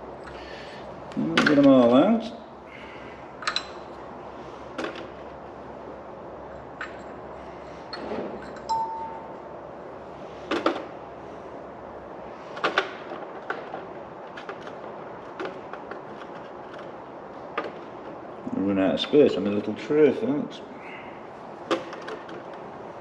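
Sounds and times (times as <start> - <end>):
metal engine parts clinking: 7.9 - 9.3
short metallic ring: 8.4 - 9.4.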